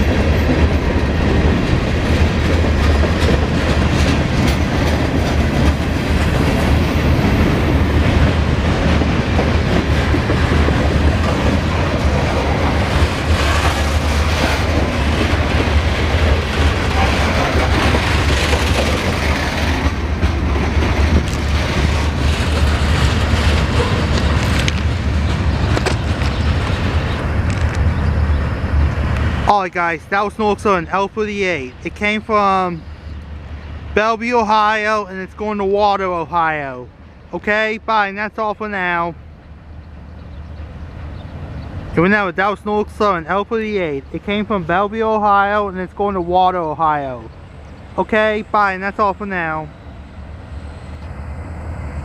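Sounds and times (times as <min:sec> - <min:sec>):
freight train wheels rumbling: 0:00.0 - 0:52.0.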